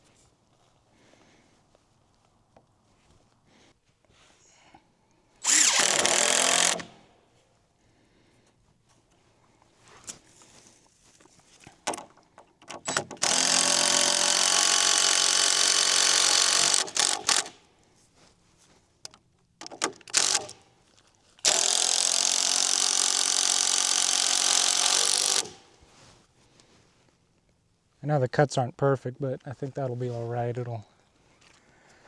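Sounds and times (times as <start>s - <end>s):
drill trigger blips: 5.4s - 7.1s, 11.9s - 17.6s, 19.0s - 20.7s, 21.4s - 25.8s
power drill driving screws: 5.4s - 7.1s, 11.9s - 17.6s, 19.6s - 20.6s, 21.4s - 25.8s.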